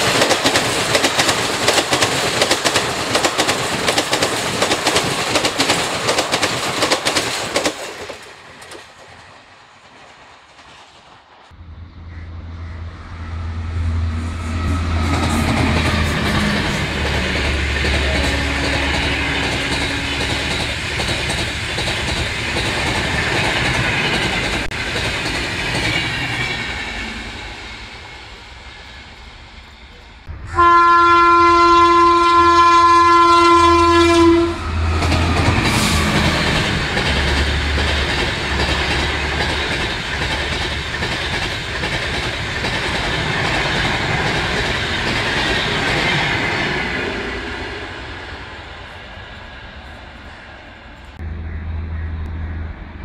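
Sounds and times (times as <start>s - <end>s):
passenger train rushing past: 0.0s - 53.0s
locomotive horn blast: 12.9s - 20.5s, 30.3s - 36.8s.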